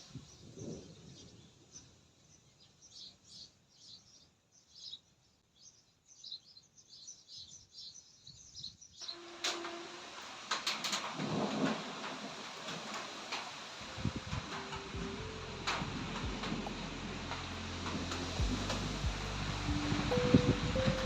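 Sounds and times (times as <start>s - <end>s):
small birds chirping: 0.0s - 9.2s
steady hiss: 9.0s - 21.0s.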